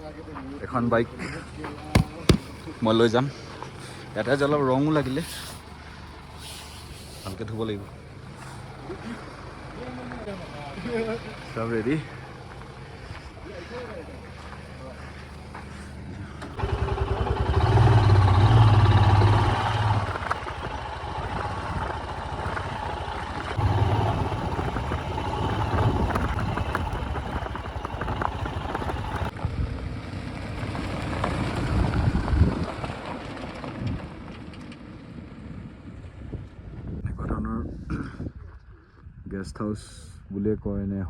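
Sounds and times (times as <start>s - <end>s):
motorcycle engine starting and running: 1.9s - 2.8s, 16.3s - 35.0s.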